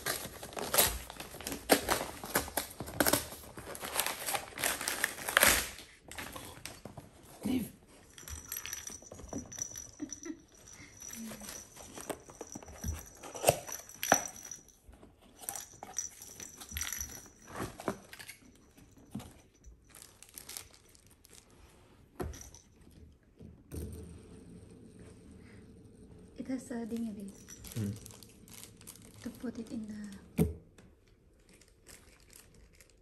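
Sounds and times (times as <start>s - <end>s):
packaging rustling and crinkling: 0.0s - 7.3s, 19.2s - 21.8s, 27.0s - 30.0s, 31.4s - 33.0s.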